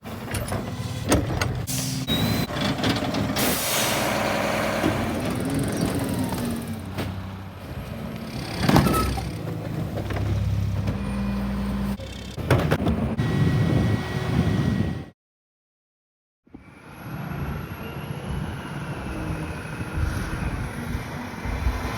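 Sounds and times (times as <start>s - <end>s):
packer hydraulics working: 0.1s - 15.0s
garbage truck diesel engine revving: 0.7s - 14.8s
loud air hiss: 3.4s - 4.2s.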